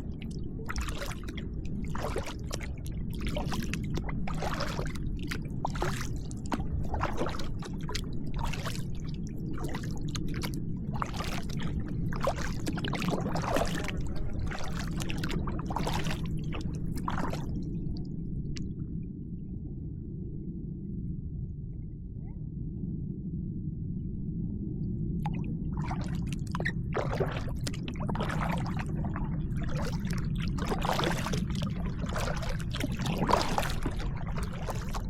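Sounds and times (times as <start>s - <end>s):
paddle strokes splashing water: 0.0s - 17.6s, 25.3s - 35.0s
low rumble: 0.0s - 35.0s.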